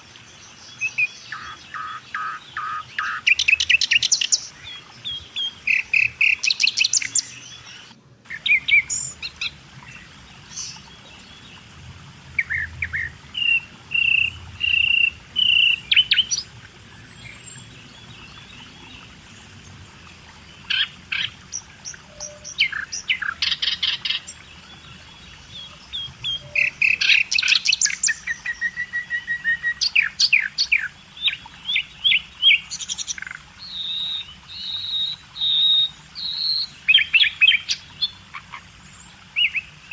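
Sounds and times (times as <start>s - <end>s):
birds chirping and singing: 0.8s - 28.2s.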